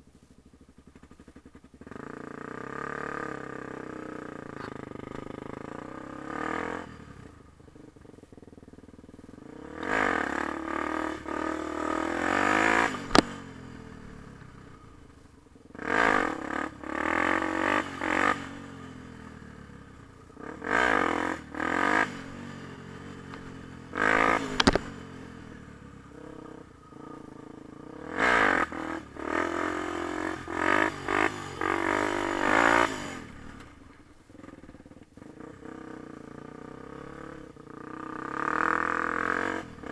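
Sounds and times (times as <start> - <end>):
dirt bike engine revving: 1.8 - 7.9, 8.8 - 39.9
sharp clicks: 24.5 - 24.9.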